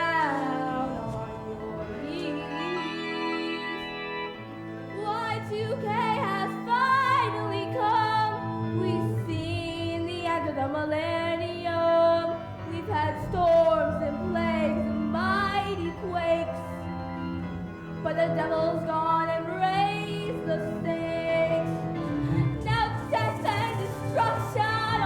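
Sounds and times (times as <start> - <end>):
instrumental accompaniment: 0.0 - 25.0
woman singing with vibrato: 18.1 - 25.0.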